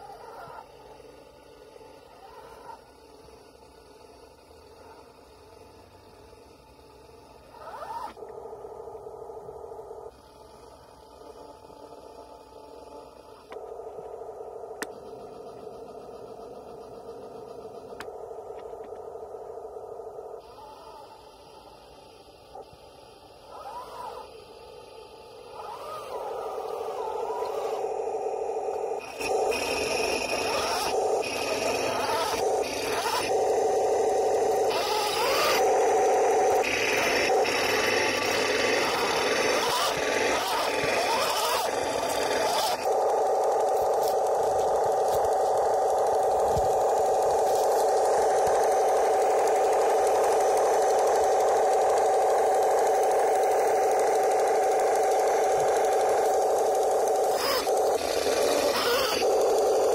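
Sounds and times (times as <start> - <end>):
toy tank rattling on metal tracks: 29.1 - 59.9.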